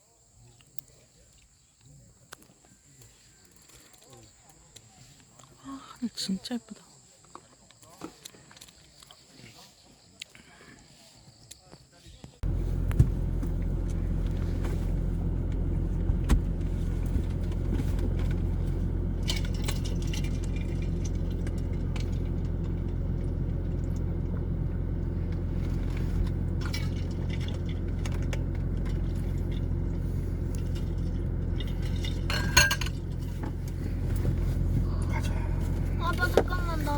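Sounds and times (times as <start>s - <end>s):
car interior drone: 12.4s - 36.9s
small objects clinking: 18.1s - 22.6s, 26.5s - 33.4s.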